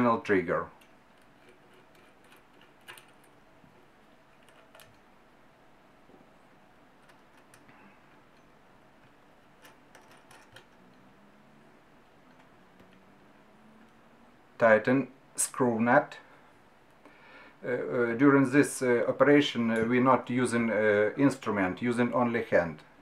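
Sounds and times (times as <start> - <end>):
small parts clicking: 0.8 - 3.4, 7.0 - 11.1.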